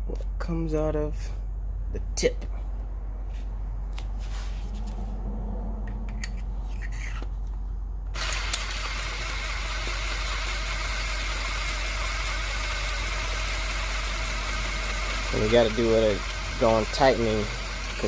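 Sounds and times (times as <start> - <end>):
motor-driven machine running: 8.1 - 18.0.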